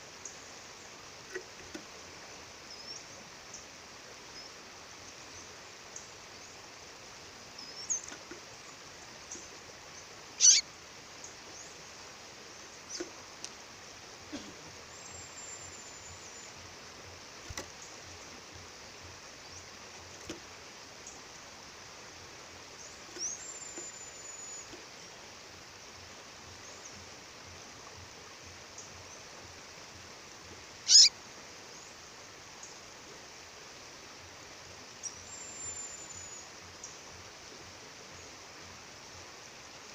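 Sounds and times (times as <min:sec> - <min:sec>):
bird peeping: 0:10.4 - 0:10.6, 0:22.8 - 0:24.8, 0:30.9 - 0:31.1
faint high bird whistles: 0:10.4 - 0:10.6, 0:30.9 - 0:31.1.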